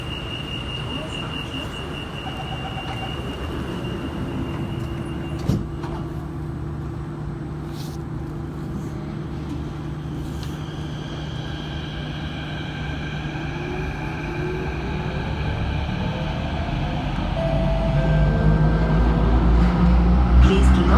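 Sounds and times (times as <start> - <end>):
train rumble: 0.0 - 20.9
high whine: 11.4 - 20.6.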